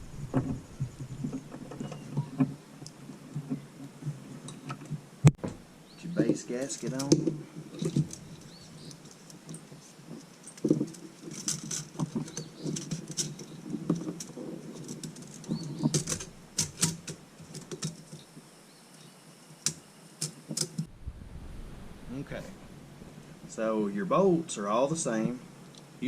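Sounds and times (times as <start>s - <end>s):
light clicks taps and rustling: 6.2s - 19.0s.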